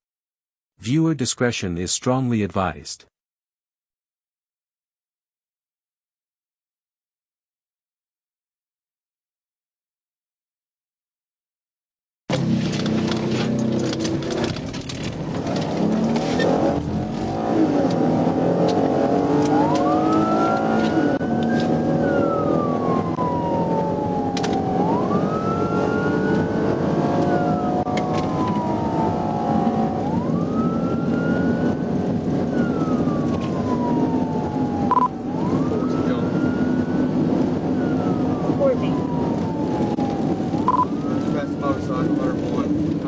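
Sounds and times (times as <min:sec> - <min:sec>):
car engine and road noise: 0:12.3 - 0:43.0
police siren wailing: 0:17.1 - 0:43.0.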